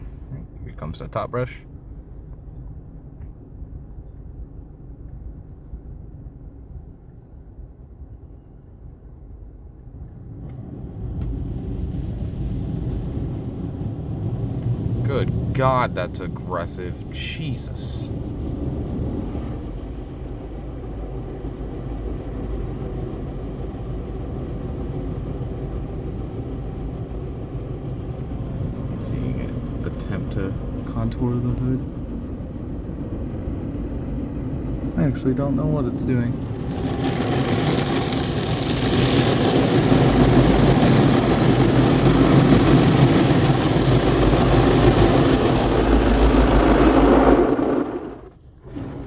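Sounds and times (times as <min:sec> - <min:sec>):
low rumble: 0:00.0 - 0:49.0
car wash machinery running: 0:10.2 - 0:49.0
car wash brush scrubbing: 0:36.2 - 0:49.0.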